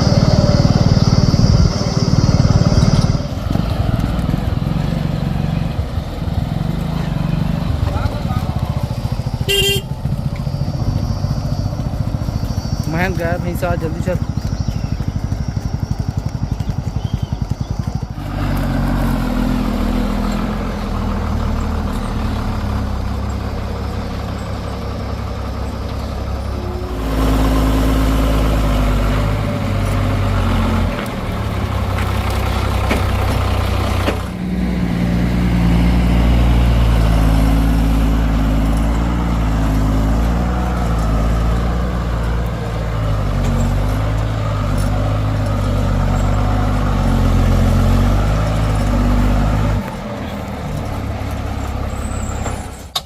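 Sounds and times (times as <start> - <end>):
heavy diesel engine under load: 0.0 - 53.0.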